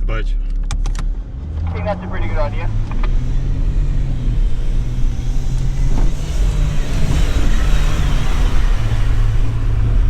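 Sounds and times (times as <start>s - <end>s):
engine working hard in sand: 1.8s - 10.0s.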